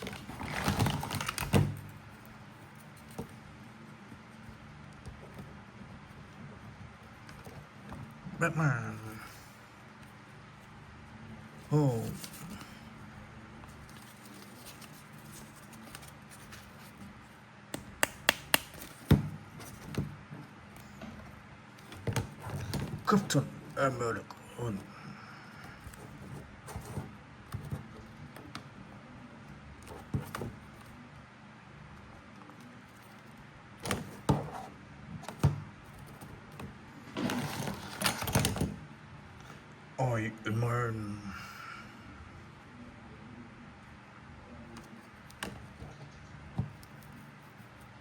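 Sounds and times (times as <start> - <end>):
plastic toy figures handled: 0.0 - 3.4, 11.7 - 12.8, 13.6 - 17.3.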